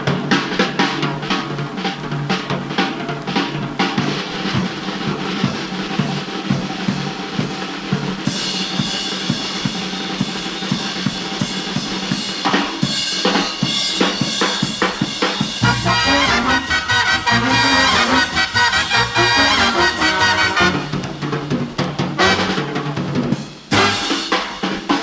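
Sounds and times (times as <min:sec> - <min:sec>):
drum kit solo: 0:00.0 - 0:25.0
band instruments playing: 0:15.5 - 0:21.3, 0:22.1 - 0:22.9, 0:23.7 - 0:24.4.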